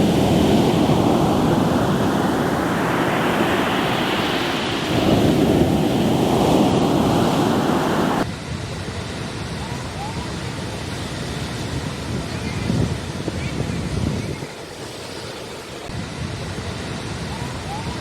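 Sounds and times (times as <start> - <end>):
waves washing over rocky shore: 0.0 - 8.3.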